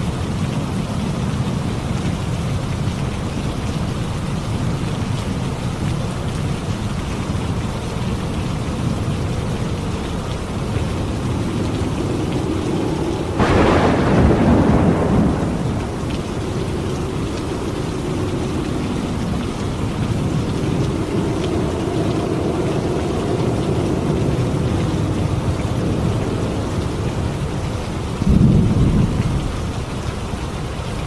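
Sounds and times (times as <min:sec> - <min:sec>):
steady rain: 0:00.0 - 0:31.0
low rumbling thunder: 0:06.4 - 0:30.1
thunder clap: 0:10.6 - 0:29.7.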